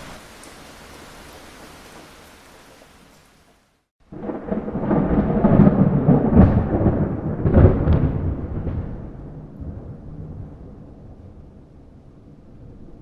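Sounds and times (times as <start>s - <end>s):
thunder rumble: 4.0s - 13.0s.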